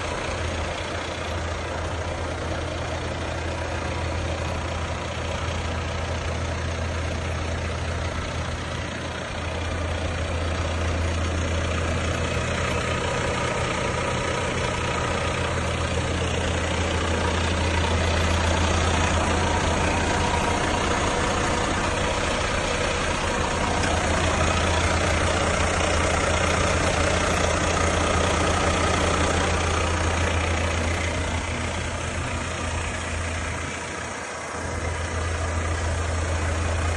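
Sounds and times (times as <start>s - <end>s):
diesel truck engine idling: 0.0s - 36.9s.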